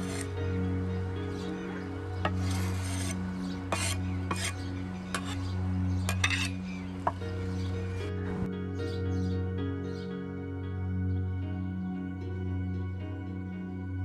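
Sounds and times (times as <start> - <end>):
utensil scraping in a pan: 0.0 - 0.4, 2.2 - 7.2
background music: 0.0 - 14.0.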